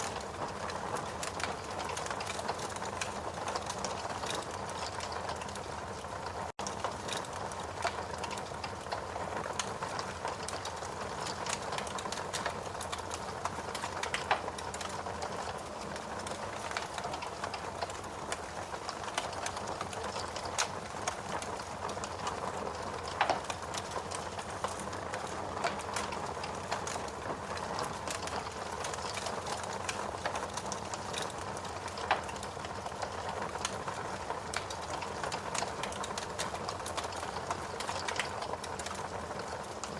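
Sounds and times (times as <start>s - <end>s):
steady rain: 0.0s - 39.9s
wood fire crackling: 0.0s - 39.9s.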